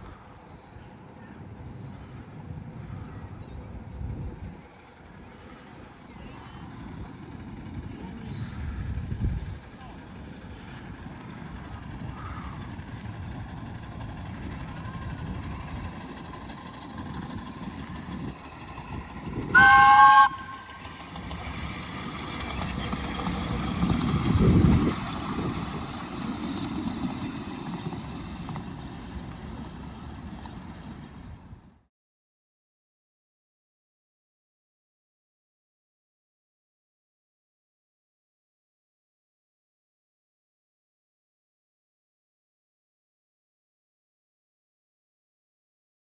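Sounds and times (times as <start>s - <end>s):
miniature train rumbling: 0.0s - 31.8s
train warning horn: 19.5s - 21.1s.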